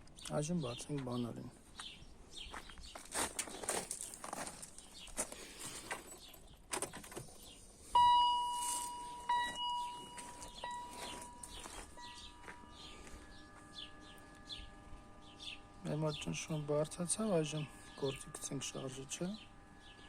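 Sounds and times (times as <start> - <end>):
birds chirping: 0.0 - 20.0
fuel pump whine: 7.2 - 20.0
ringing chime tone: 7.9 - 20.0.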